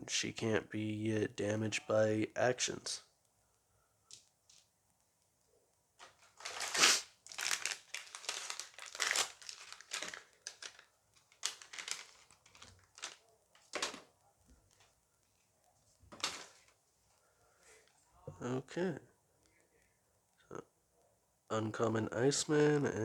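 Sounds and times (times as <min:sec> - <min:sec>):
plastic foil pack crinkling: 0:06.0 - 0:14.1, 0:16.1 - 0:16.8.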